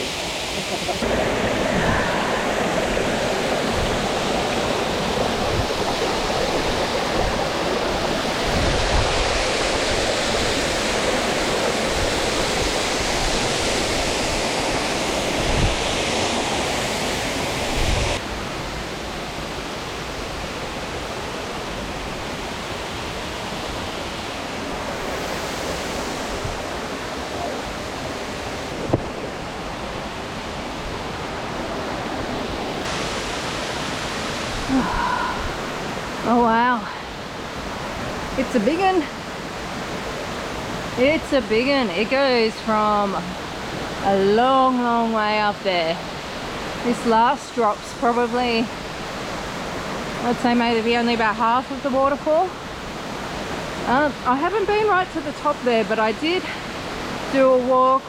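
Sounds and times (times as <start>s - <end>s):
waterfall rushing: 0.0s - 45.4s.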